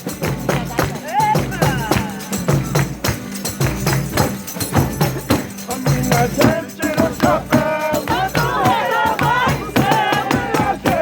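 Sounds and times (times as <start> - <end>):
tambourine strikes: 0.0 - 11.0
voices singing: 0.0 - 11.0.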